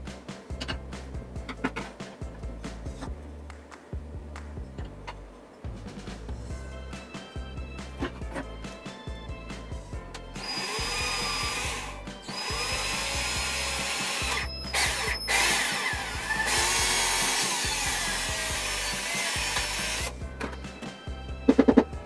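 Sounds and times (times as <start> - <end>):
background music: 0.0 - 22.0
drill boring into wood: 10.4 - 20.2.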